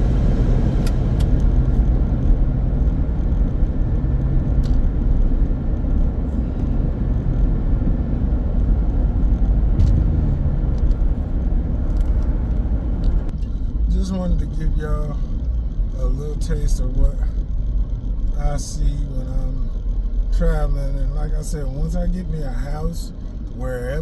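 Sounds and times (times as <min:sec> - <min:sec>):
car road rumble and tyre noise: 0:00.0 - 0:24.0.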